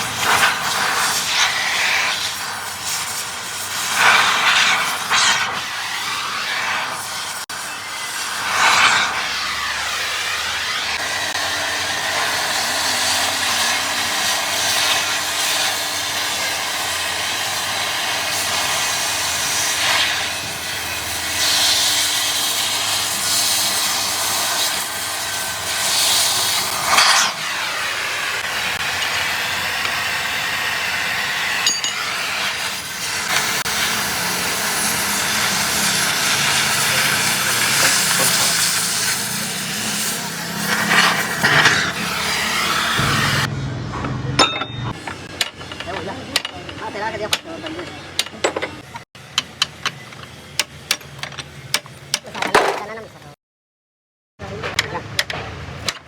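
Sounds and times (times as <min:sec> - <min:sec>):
tool scraping metal parts: 0:31.6 - 0:32.5, 0:36.8 - 0:42.3, 0:44.4 - 0:53.0.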